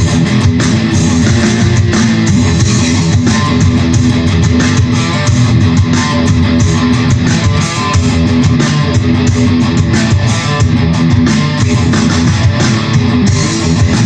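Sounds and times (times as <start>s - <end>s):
bass guitar: 0.0s - 14.0s
steady drum beat: 0.0s - 14.0s
strummed electric guitar: 0.0s - 14.0s.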